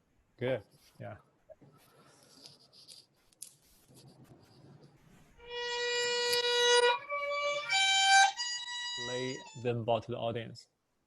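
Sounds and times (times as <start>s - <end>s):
violin bowed notes: 5.4s - 9.9s.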